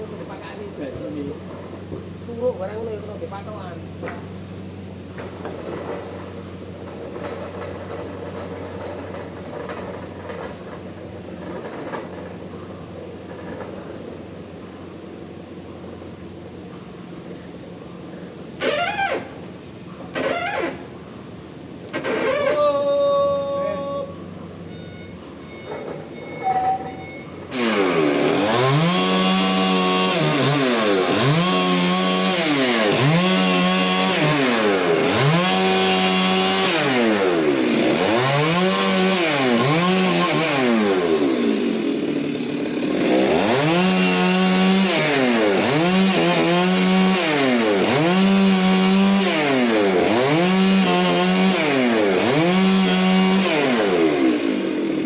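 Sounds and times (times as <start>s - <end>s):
chainsaw engine revving: 18.6s - 19.5s, 20.1s - 20.9s, 21.9s - 22.7s, 27.5s - 55.0s.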